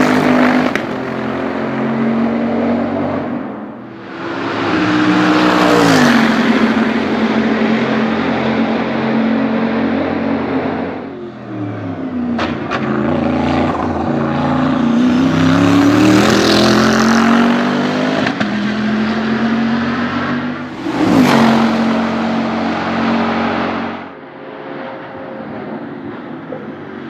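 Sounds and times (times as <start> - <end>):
car passing by in a rush: 3.2 - 8.7.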